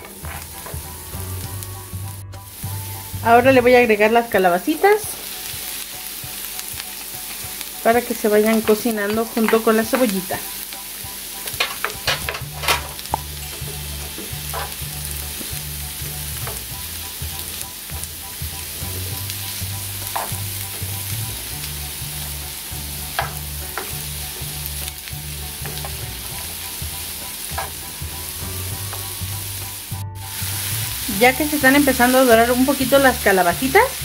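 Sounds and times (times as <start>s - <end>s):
vegetables sizzling in oil: 0.0s - 34.0s
utensil clicking against pan: 11.5s - 14.8s.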